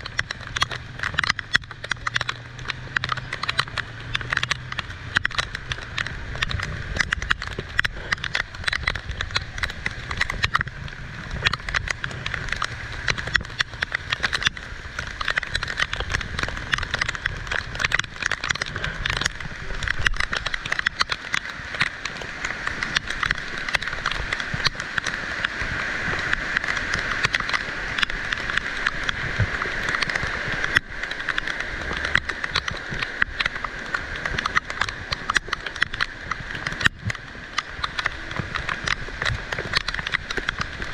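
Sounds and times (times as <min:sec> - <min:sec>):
heavy rain on hard surfaces: 0:00.0 - 0:40.9.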